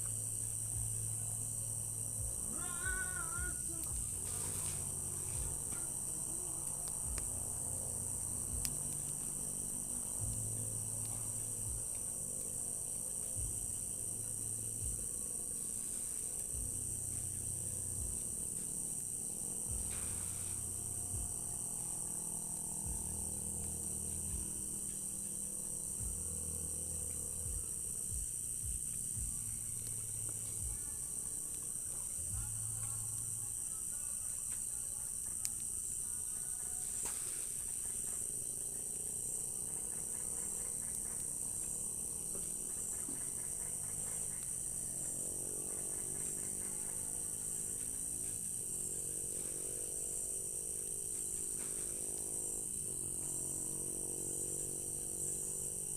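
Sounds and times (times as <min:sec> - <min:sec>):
crickets chirring: 0:00.0 - 0:55.9
soft hiss: 0:00.0 - 0:55.9.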